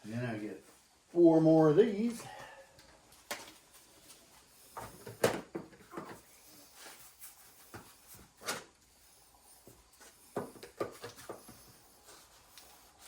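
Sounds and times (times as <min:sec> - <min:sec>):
knocks and clacks of shelving parts: 0:04.8 - 0:06.3.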